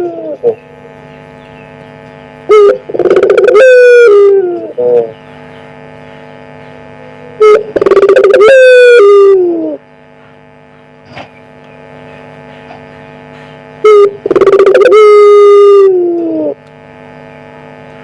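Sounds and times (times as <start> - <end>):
dove cooing: 0.0 - 1.0, 2.5 - 5.2, 7.1 - 9.8, 13.8 - 16.6
steady hum: 0.0 - 18.0.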